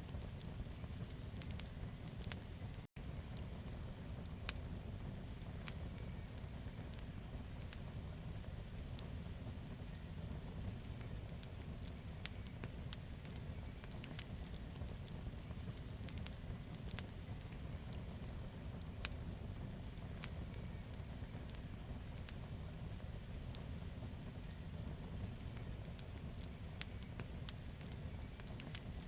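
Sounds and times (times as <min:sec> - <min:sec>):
burning wood crackling and popping: 0:00.0 - 0:29.0
low rumble of flames: 0:00.0 - 0:29.0.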